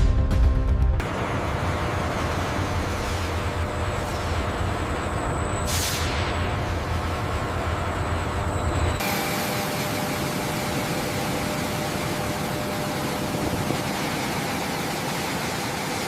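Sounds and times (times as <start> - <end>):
jet engine running: 1.0 - 16.0.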